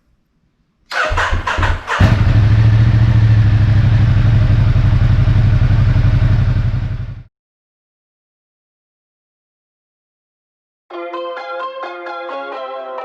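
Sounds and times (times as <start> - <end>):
motorcycle engine starting and idling: 0.9 - 7.3.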